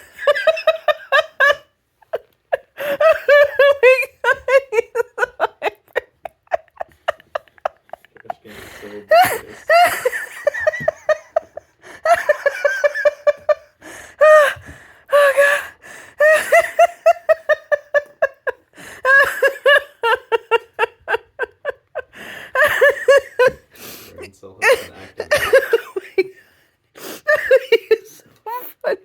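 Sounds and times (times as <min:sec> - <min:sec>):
person laughing hard: 0:00.0 - 0:15.6, 0:16.2 - 0:23.7, 0:24.6 - 0:26.4, 0:27.3 - 0:29.0
short breaths: 0:08.4 - 0:09.7, 0:23.7 - 0:24.2.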